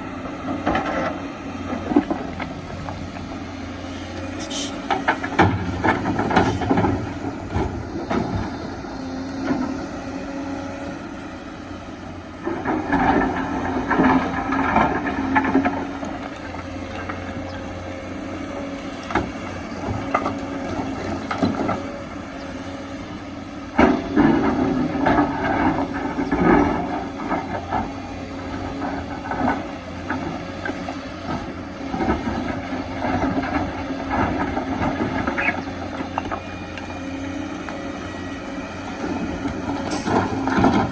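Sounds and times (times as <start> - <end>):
excavator diesel engine running: 0.0 - 40.9
knocks and grinding: 0.2 - 40.9
rocks scraping against steel bucket: 3.8 - 5.2.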